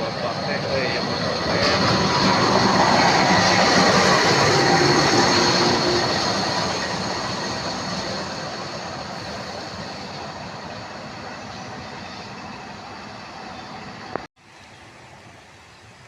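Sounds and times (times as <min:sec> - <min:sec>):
train wheels squealing: 0:00.0 - 0:14.1
train passing on rails: 0:00.0 - 0:16.0.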